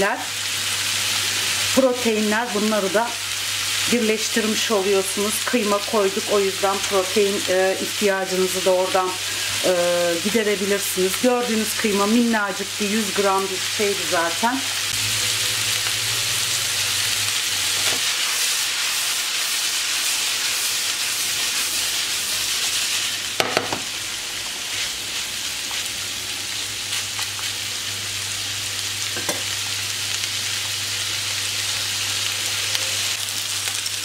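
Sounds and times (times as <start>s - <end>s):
vegetables sizzling in frying pan: 0.0s - 34.0s
sharp knock of stirring: 23.4s - 23.9s.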